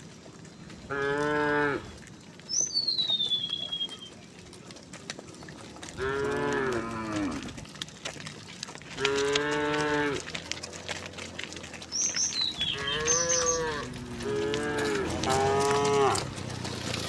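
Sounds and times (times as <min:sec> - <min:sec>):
cows mooing: 0:00.8 - 0:02.0, 0:05.8 - 0:07.8, 0:08.8 - 0:17.0
bird chirping: 0:02.4 - 0:04.3, 0:11.8 - 0:16.1.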